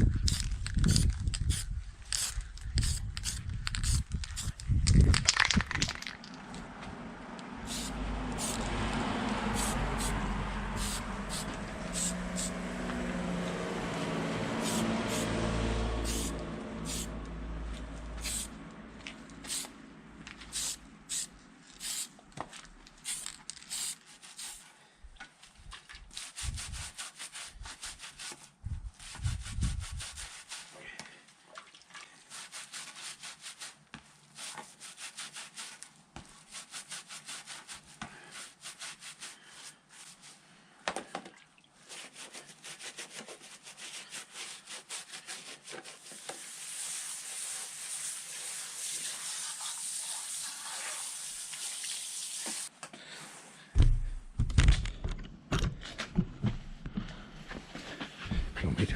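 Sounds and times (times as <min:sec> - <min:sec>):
hand sanding strokes: 0:07.7 - 0:08.8, 0:09.4 - 0:17.2, 0:18.1 - 0:18.6, 0:23.0 - 0:24.7, 0:26.1 - 0:30.8, 0:32.2 - 0:40.5, 0:41.8 - 0:52.7.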